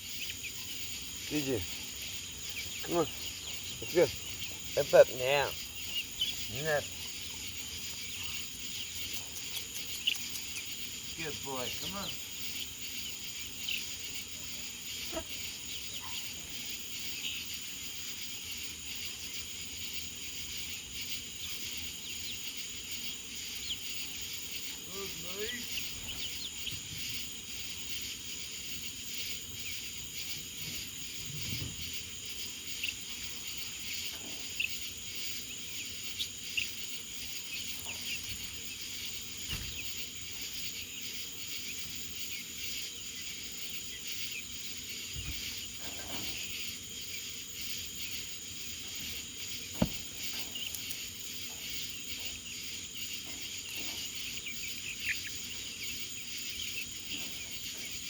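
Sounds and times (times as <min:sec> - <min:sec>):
insect chorus: 0:00.0 - 0:58.0
sharp knock: 0:49.8 - 0:50.0.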